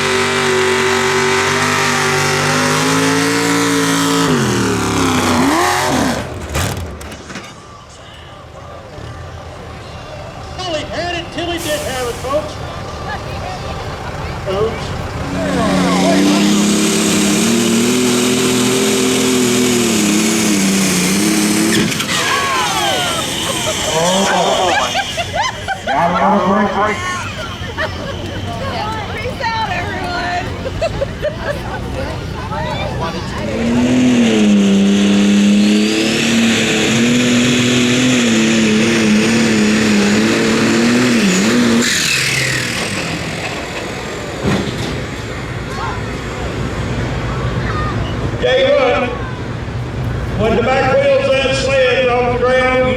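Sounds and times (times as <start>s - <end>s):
vehicle engine revving hard: 0.0s - 7.0s, 14.4s - 28.6s, 29.7s - 45.6s
outdoor noise: 0.0s - 52.9s
falling whine: 15.0s - 30.2s
thump: 44.4s - 45.1s.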